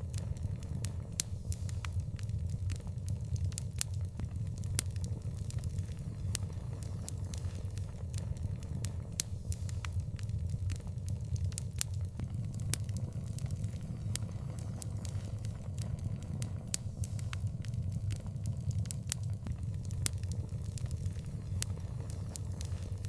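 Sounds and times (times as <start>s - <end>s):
wood fire crackling: 12.2s - 19.6s.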